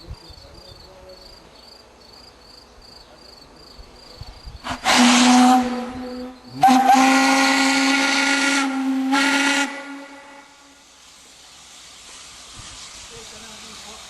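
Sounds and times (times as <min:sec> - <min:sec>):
faint steam hiss: 0:00.0 - 0:14.0
steam locomotive whistle: 0:04.7 - 0:10.8.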